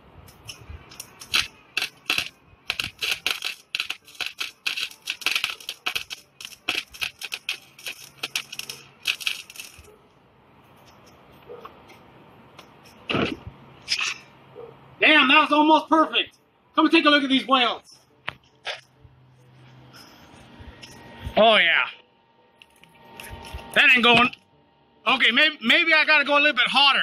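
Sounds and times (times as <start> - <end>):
electric welding arc crackling: 0.3 - 9.9.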